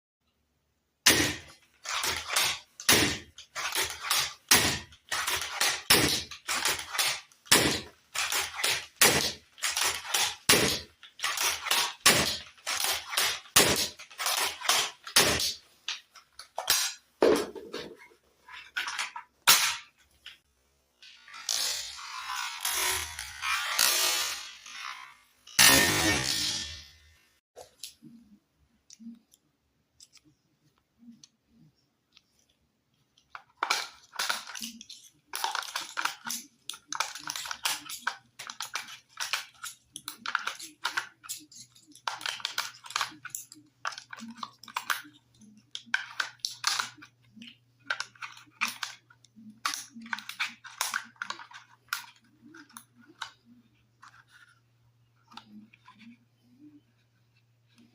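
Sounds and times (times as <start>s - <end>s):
crossbow mechanical clacks: 1.1s - 17.0s.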